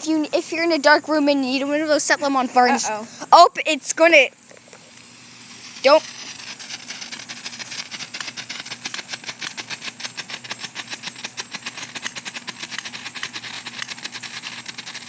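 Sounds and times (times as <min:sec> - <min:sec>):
firework crackling pops: 0:04.1 - 0:15.0.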